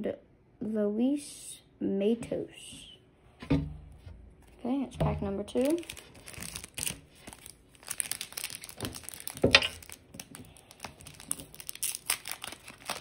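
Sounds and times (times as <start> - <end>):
plastic wrapper crinkling and tearing: 5.2 - 13.0.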